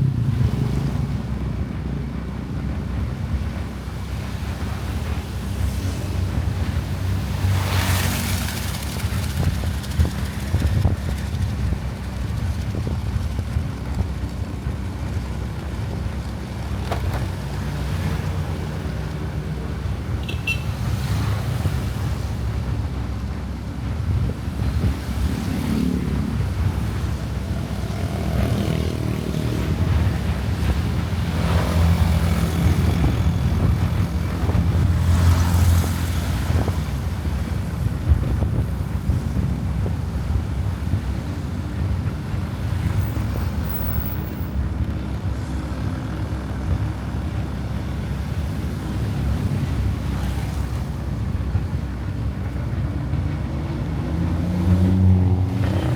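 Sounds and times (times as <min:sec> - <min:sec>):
motorcycle engine cruising: 0:00.0 - 0:55.9
passing traffic: 0:00.0 - 0:55.9
road noise: 0:00.0 - 0:55.9.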